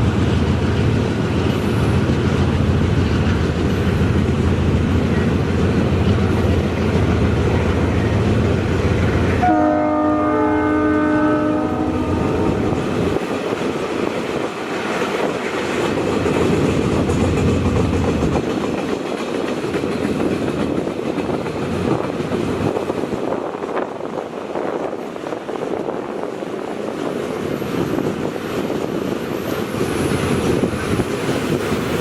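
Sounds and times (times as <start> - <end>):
train rumbling past on rails: 0.0 - 32.0
locomotive horn: 9.4 - 12.9.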